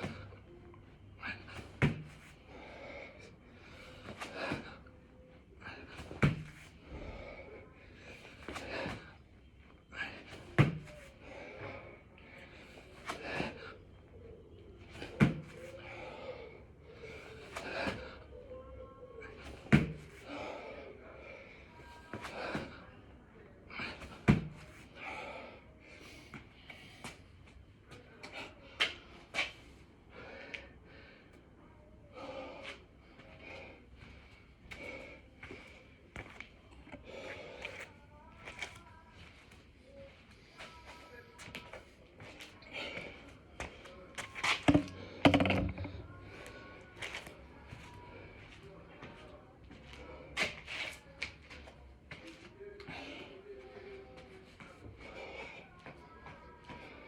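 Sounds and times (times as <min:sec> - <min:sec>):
man breathing heavily: 0:01.1 - 0:14.2, 0:15.3 - 0:18.4, 0:19.3 - 0:23.0, 0:29.9 - 0:37.9, 0:52.8 - 0:56.0
man breathing hard: 0:02.3 - 0:04.9.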